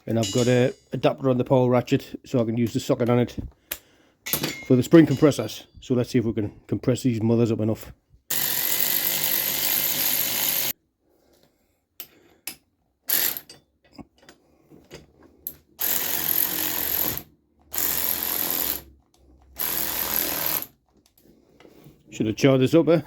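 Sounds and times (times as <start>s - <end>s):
cordless power ratchet whirring: 8.3s - 10.7s, 15.8s - 19.0s, 19.6s - 20.7s.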